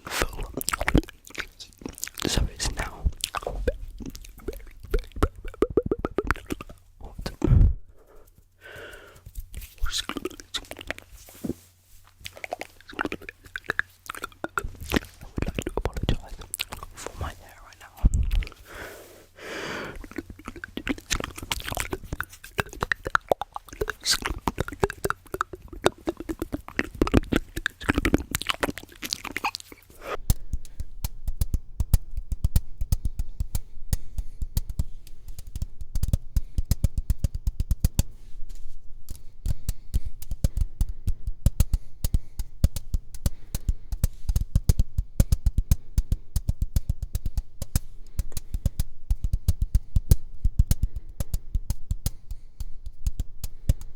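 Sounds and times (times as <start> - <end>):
fast rhythmic tapping beat: 0.0 - 7.4, 8.8 - 11.1, 12.3 - 17.8, 20.0 - 53.9
wet mouth clicks and smacks: 0.0 - 7.6, 8.2 - 11.1, 12.1 - 18.6, 19.9 - 53.9.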